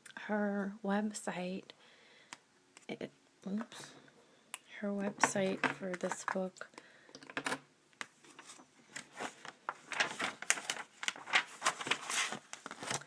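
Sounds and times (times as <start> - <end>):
paper rustling: 8.2 - 13.0.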